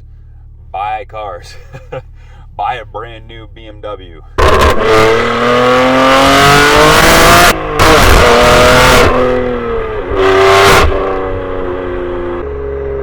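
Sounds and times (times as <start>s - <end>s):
car engine revving hard: 4.4s - 13.0s.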